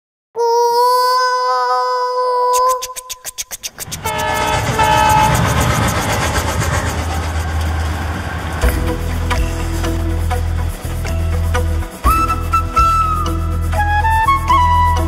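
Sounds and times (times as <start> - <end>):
train wheels clicking and rumbling: 3.8 - 13.3
train horn: 4.0 - 6.6.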